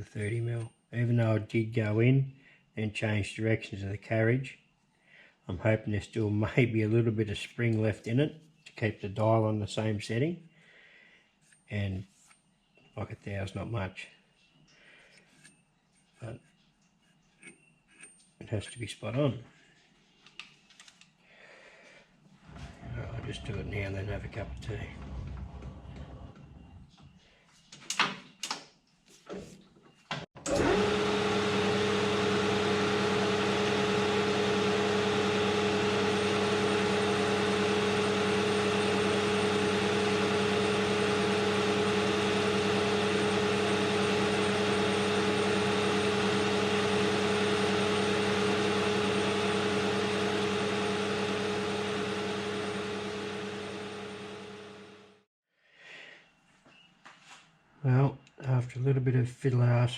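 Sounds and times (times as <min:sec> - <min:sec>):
metal lathe running with a hum: 0:30.5 - 0:55.2.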